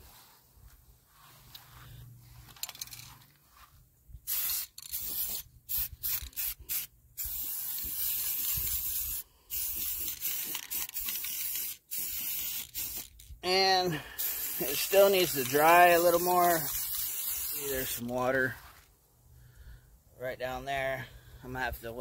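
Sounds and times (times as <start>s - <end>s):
spray paint can hissing: 4.2s - 13.3s, 14.2s - 18.0s.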